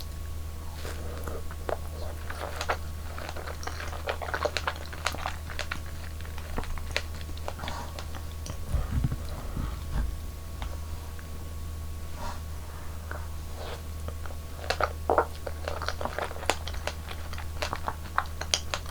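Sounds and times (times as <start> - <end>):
biting and chewing: 0.0 - 11.3, 13.0 - 18.9
dull low thumps: 8.6 - 11.0.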